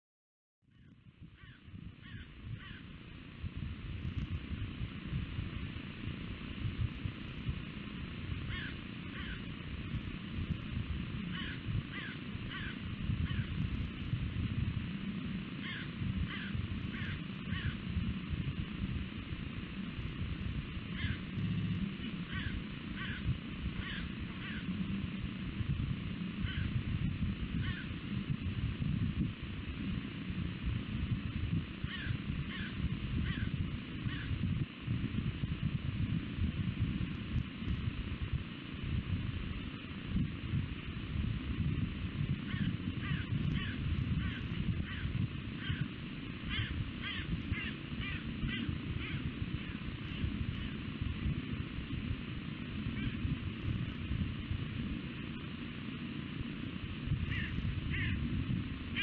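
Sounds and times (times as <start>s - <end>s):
steady low rumble: 0.6s - 59.0s
bird calling: 8.5s - 9.5s, 11.3s - 13.6s, 15.6s - 17.8s, 20.9s - 24.7s, 31.9s - 33.5s, 42.5s - 45.9s, 46.5s - 49.8s, 57.3s - 58.2s.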